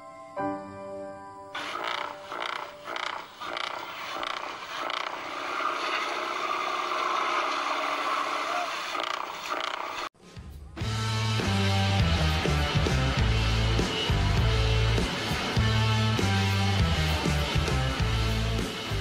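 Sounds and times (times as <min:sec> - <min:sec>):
toy steam boat engine putting: 0:01.6 - 0:10.1.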